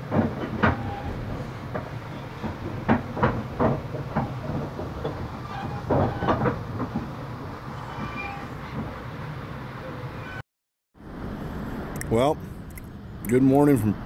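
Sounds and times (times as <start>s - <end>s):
train wheels clacking: 0.0s - 9.1s
train rumbling along track: 0.0s - 10.4s, 11.0s - 14.0s.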